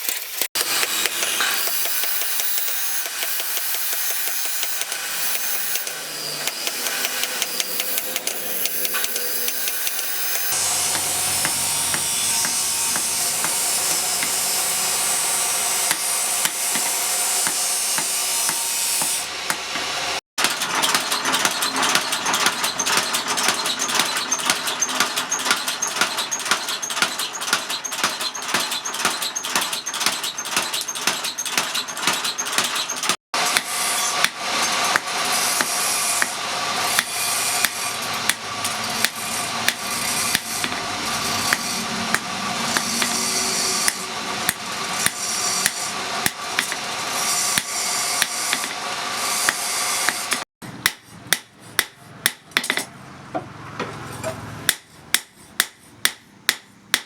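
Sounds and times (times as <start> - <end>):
tool strokes on steel: 0.0 - 20.0, 20.9 - 52.3
hand tools scraping steel: 0.0 - 53.0
sharp strikes on steel: 0.6 - 14.9, 15.7 - 19.9.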